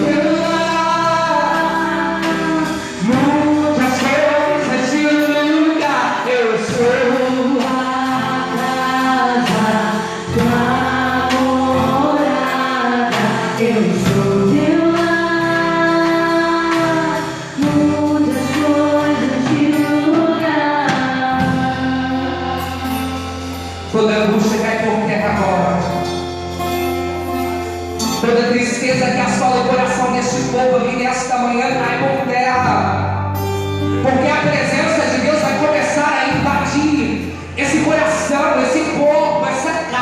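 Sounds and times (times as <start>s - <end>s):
group singing worship song: 0.0s - 23.8s
instrumental backing: 0.0s - 40.0s.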